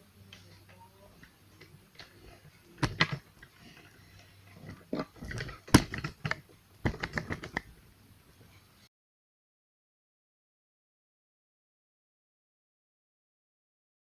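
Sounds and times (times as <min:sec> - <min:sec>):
hard objects knocking and clicking: 0:02.8 - 0:03.9, 0:04.6 - 0:07.7.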